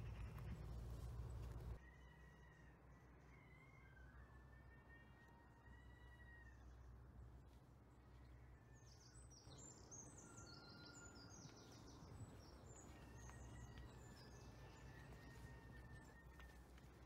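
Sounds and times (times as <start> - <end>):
low outdoor background rumble: 0.0 - 17.0
songbird singing: 8.0 - 17.0.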